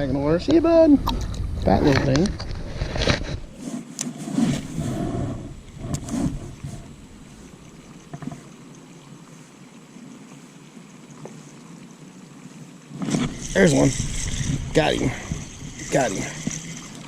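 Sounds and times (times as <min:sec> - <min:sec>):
water noise: 0:00.0 - 0:17.0
wind: 0:00.0 - 0:17.0
knocks and rustles: 0:08.0 - 0:08.5.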